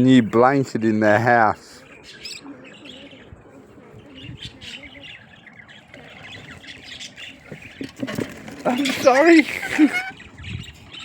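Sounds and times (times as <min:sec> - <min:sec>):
small birds chattering and chirping: 0:00.0 - 0:11.0.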